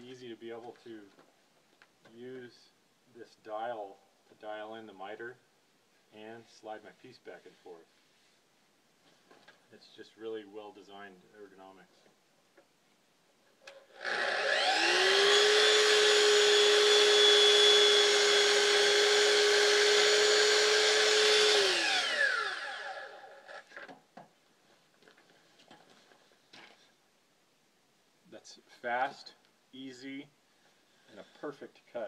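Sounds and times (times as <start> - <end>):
miter saw whining: 13.9 - 23.8.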